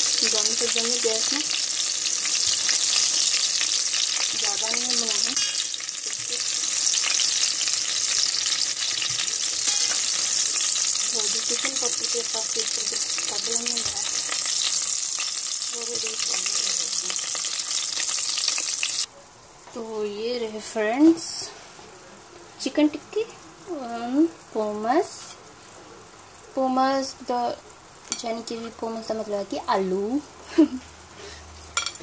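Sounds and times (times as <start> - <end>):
patties sizzling in oil: 0.0 - 32.0
metal spoon in pan: 2.3 - 15.6, 28.1 - 28.8, 31.8 - 32.0.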